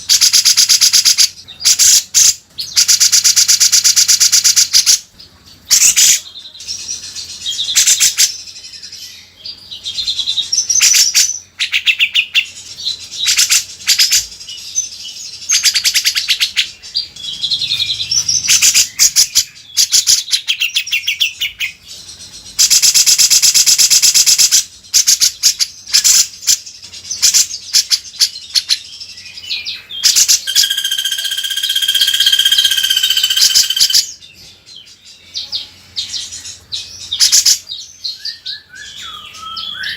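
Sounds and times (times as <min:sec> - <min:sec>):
bulbul chattering trills: 0:09.8 - 0:28.8, 0:29.8 - 0:34.3.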